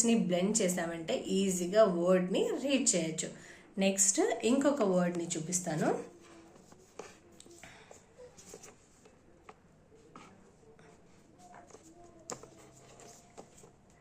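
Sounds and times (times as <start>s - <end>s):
handwriting scratching and tapping: 5.8s - 14.0s.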